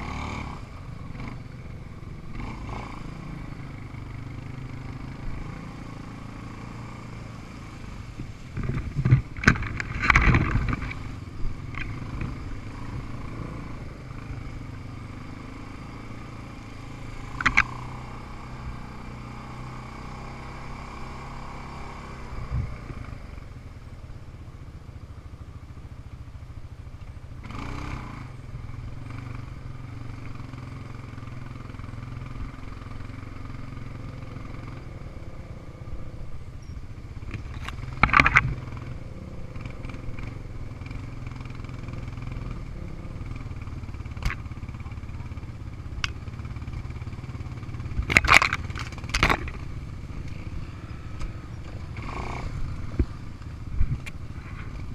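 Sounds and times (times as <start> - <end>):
small engine running: 27.4 - 54.9
short rattle: 36.6 - 38.8.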